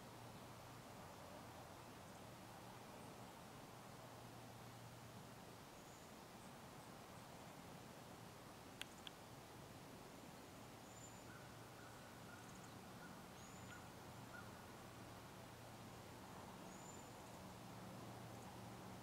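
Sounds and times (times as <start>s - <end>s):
faint bird calls: 10.4s - 14.8s.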